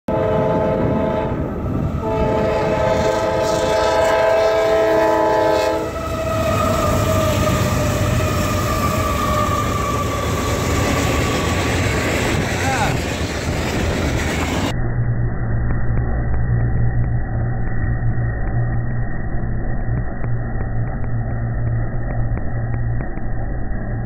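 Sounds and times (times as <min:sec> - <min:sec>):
locomotive horn chord: 0:00.1 - 0:10.5
freight train rumbling on rails: 0:00.1 - 0:14.7.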